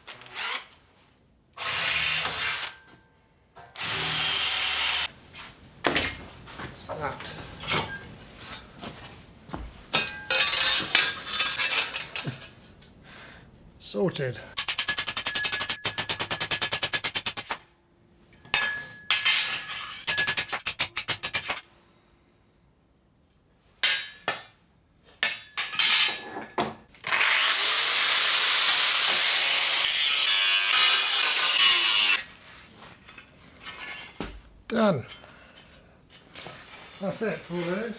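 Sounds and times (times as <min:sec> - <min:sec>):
fast rattling tool strokes: 0:14.6 - 0:17.6, 0:20.1 - 0:21.6.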